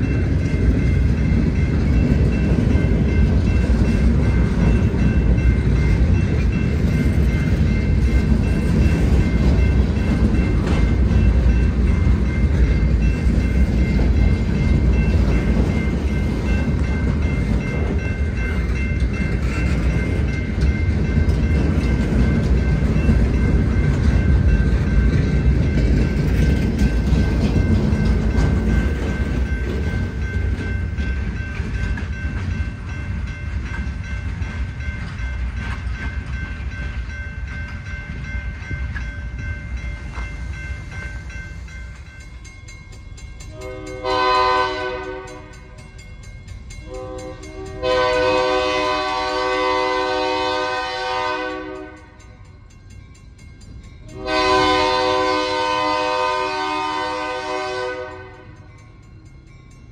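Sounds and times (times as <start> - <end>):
freight train passing: 0.0 - 59.9
locomotive horn blast: 43.5 - 45.5, 46.9 - 52.1, 54.1 - 58.5.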